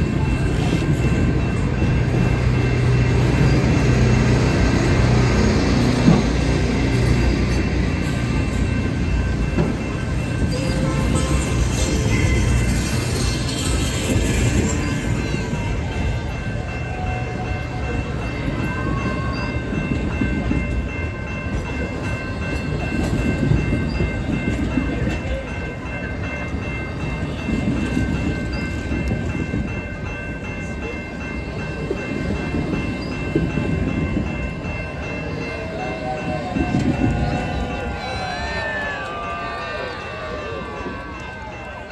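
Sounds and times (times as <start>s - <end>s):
steady high tones: 0.0s - 22.6s
train wheels rumbling on rails: 0.0s - 41.9s.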